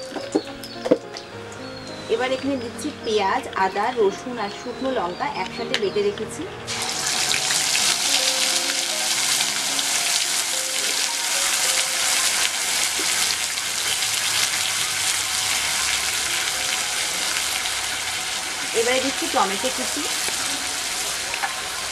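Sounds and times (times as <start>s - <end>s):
paste sizzling in hot oil: 6.7s - 21.9s.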